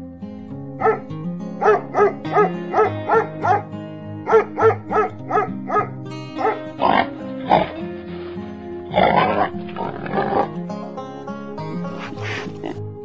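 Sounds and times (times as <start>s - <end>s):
background music: 0.0s - 13.0s
dog barking: 0.8s - 7.8s.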